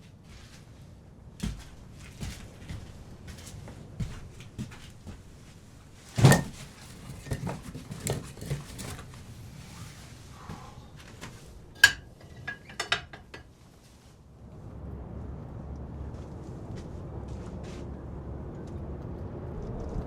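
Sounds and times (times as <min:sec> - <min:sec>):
knocks of objects handled: 0:06.2 - 0:09.3, 0:11.2 - 0:13.5.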